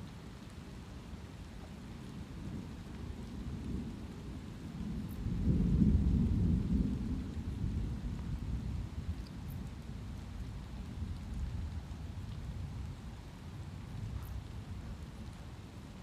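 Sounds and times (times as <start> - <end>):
light rain: 0.0 - 16.0
rolling thunder: 5.0 - 9.0.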